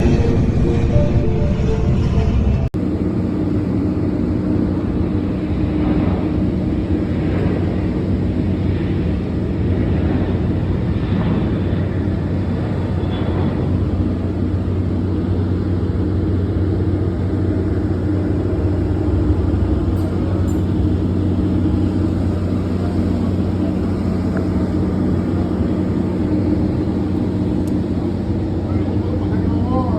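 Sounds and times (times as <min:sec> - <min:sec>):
low even hum: 0:00.0 - 0:29.9
air conditioning unit running: 0:02.8 - 0:29.9.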